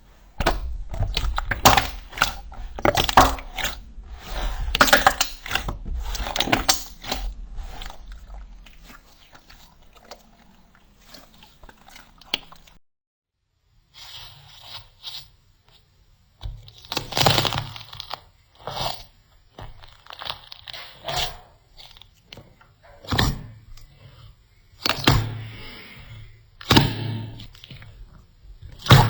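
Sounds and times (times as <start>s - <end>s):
slime crackling and popping: 16.6s - 22.3s.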